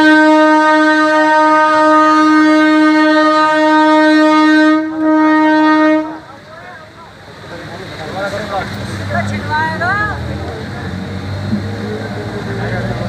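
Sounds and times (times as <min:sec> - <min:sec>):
train horn blast: 0:00.0 - 0:06.3.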